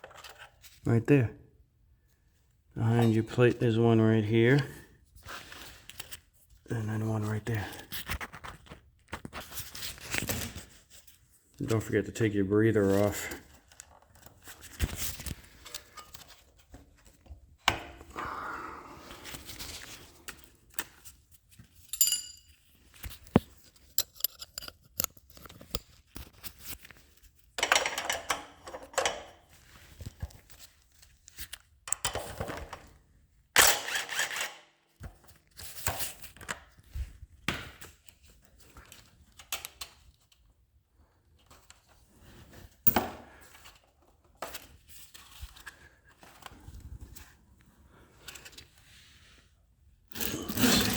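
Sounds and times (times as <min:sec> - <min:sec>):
tools and metal parts clinking: 0:21.7 - 0:25.6, 0:27.6 - 0:29.4
ringing metallic clink: 0:22.0 - 0:22.5
metal scraping: 0:50.1 - 0:50.9.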